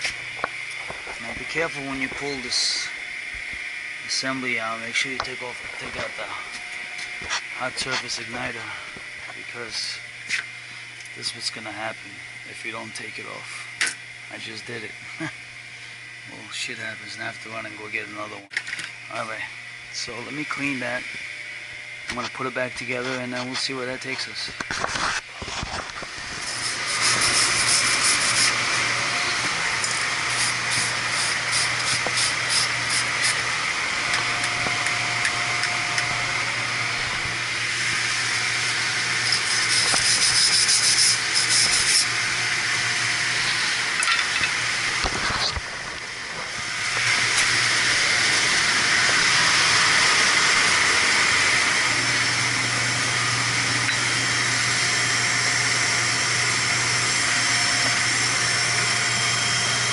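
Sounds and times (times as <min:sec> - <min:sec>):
steady low hum: 0:00.0 - 0:59.9
loud steady hissing: 0:26.0 - 0:59.9
rhythmic scrubbing strokes: 0:39.2 - 0:42.1.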